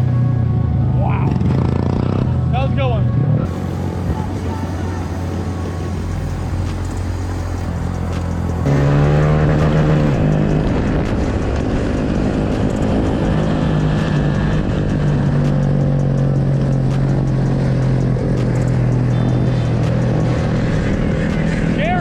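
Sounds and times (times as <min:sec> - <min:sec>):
mini bike engines running: 0:03.5 - 0:08.7.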